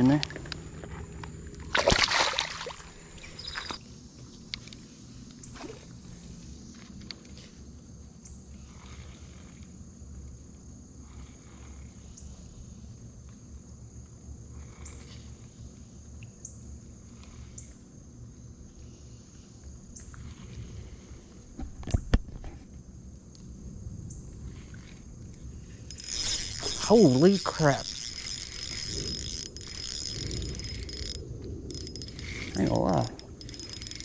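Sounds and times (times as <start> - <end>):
crickets chirping: 0.0 - 34.0
faint ticks: 24.1 - 34.0.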